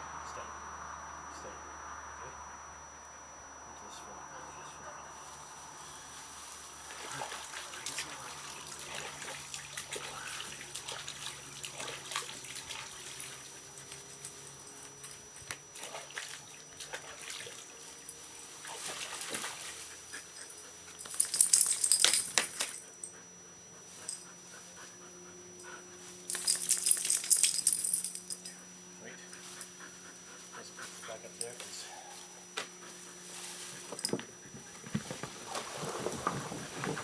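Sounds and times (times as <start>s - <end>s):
water sloshing and splashing: 6.9s - 13.5s, 15.8s - 17.8s
jingling and rattling: 20.3s - 22.9s, 26.3s - 28.5s.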